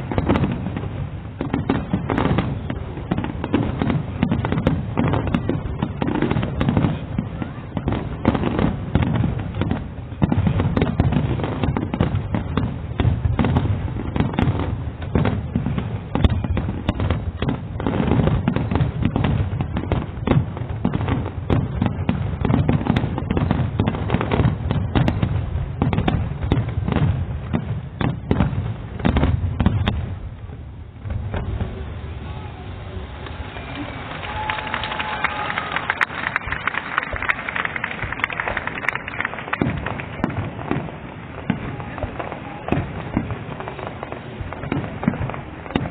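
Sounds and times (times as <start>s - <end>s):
fireworks bangs and booms: 0.0s - 45.9s.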